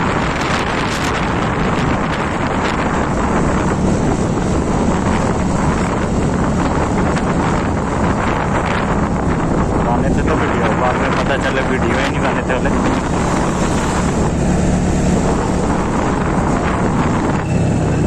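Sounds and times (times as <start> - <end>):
wind buffeting microphone: 0.0 - 18.0
scooter noise: 11.1 - 18.0.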